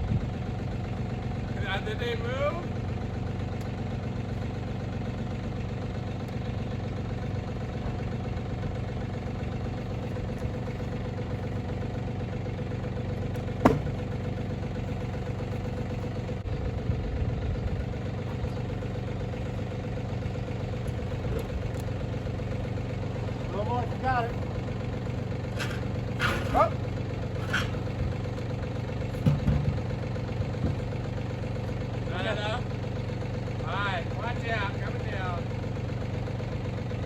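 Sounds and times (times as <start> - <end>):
loader engine idling: 0.0 - 37.0
sharp knocks: 13.6 - 14.0.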